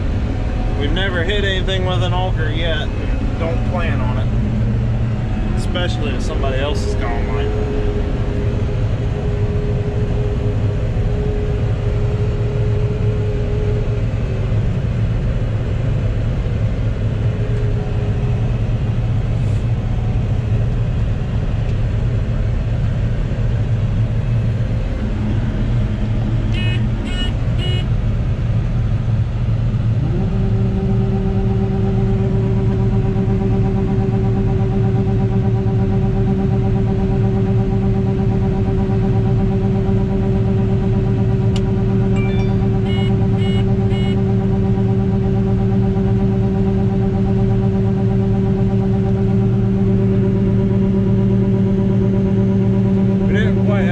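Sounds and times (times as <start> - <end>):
diesel engine rumbling: 0.0 - 53.9
steady multi-pitch hum: 0.0 - 53.9
short electronic beeps: 42.1 - 44.3.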